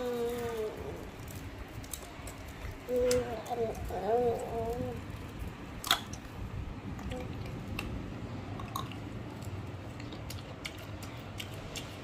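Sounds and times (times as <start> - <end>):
person chewing chicken wings: 8.8 - 12.0.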